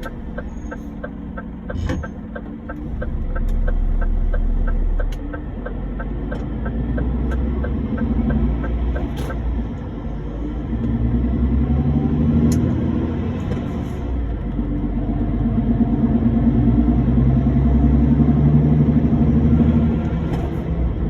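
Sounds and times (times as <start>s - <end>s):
quick even ticking: 0.0s - 9.4s
road rumble: 0.0s - 21.0s
truck engine: 0.0s - 21.0s.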